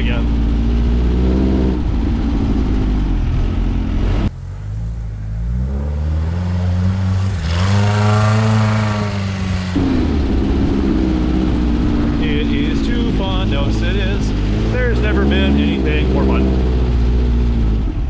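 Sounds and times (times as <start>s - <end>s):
air-cooled engine revving: 0.0s - 18.0s.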